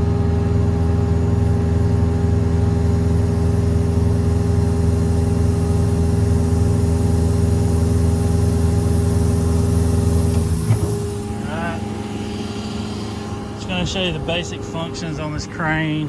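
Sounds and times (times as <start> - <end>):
air compressor running: 0.0 - 16.0
diesel engine running: 0.0 - 16.0
compressor clunk: 9.2 - 15.5.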